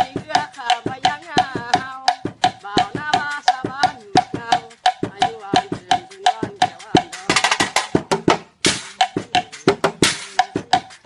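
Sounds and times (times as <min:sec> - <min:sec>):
ringing percussion strikes: 0:00.0 - 0:11.0
wavering pitched melody: 0:08.9 - 0:11.0.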